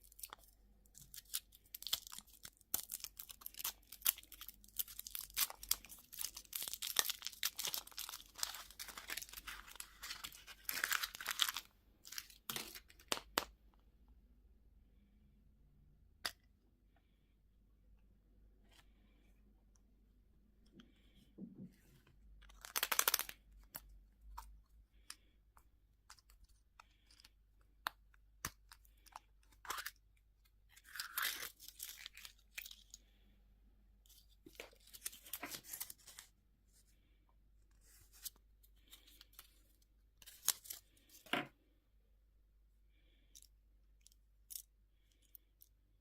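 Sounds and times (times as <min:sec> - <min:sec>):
candy wrapper tearing and crinkling: 0:00.0 - 0:13.5, 0:22.4 - 0:24.6, 0:26.1 - 0:33.0, 0:40.2 - 0:41.1.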